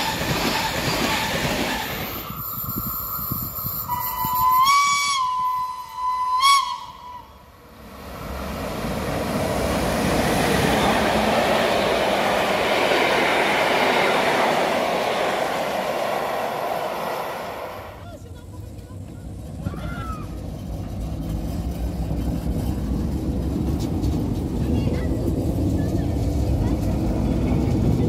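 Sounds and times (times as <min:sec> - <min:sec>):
train whistle: 0:00.0 - 0:07.5
train wheels rumbling on rails: 0:00.0 - 0:28.0.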